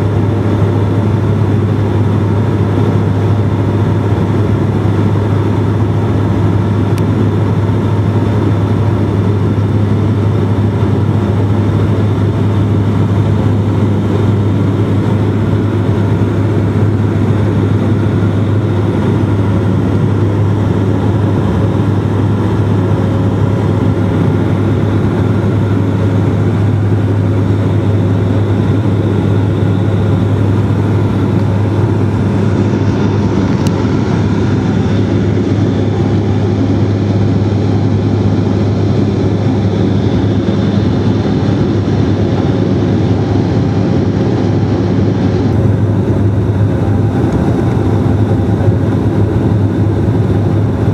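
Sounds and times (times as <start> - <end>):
propeller engines droning: 0.0 - 50.9.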